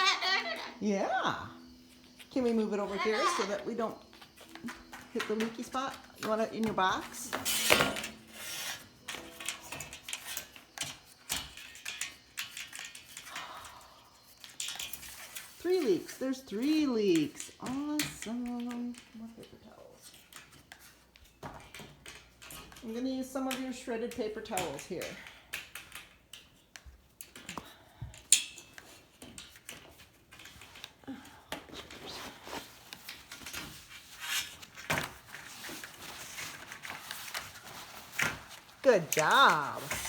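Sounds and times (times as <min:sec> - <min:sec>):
small clicks and knocks: 0:09.0 - 0:13.4, 0:16.6 - 0:31.8
faint rustling: 0:29.8 - 0:40.0.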